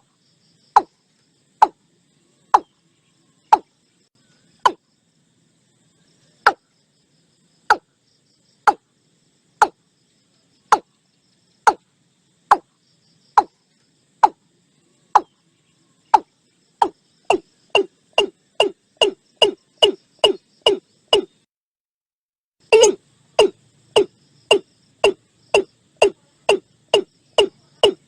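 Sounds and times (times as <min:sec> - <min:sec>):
bird calling downward notes: 0:22.7 - 0:28.0.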